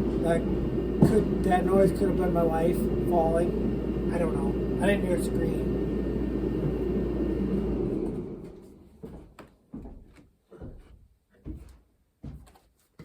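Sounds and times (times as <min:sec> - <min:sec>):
heater droning: 0:00.0 - 0:09.5.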